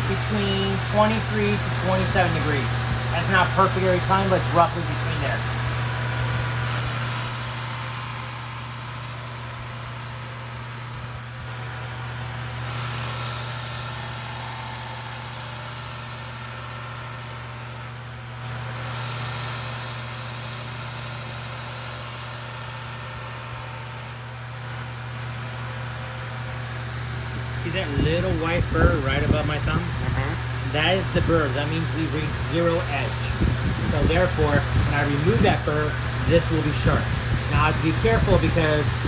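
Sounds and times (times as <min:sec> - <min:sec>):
grinder motor humming: 0:00.0 - 0:39.0
blade grinding hiss: 0:06.6 - 0:11.2, 0:12.6 - 0:18.0.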